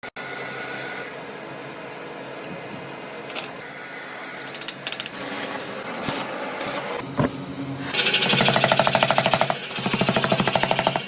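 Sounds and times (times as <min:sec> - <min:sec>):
shop equipment humming: 0:00.0 - 0:11.0
rattling clicks: 0:04.4 - 0:05.2.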